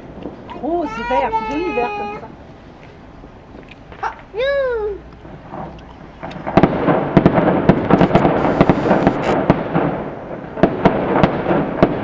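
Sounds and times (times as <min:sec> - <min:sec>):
fireworks crackling pops: 0:00.0 - 0:01.8, 0:05.0 - 0:12.0
firework shell bursting: 0:05.2 - 0:12.0.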